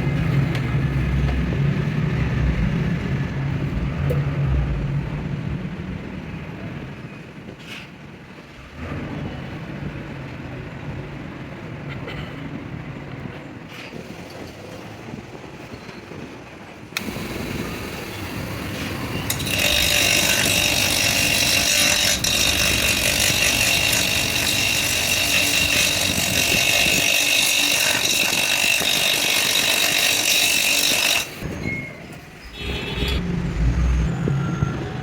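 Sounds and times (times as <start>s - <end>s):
low rumble: 0.0s - 6.6s
power tool whining on metal: 17.0s - 31.4s.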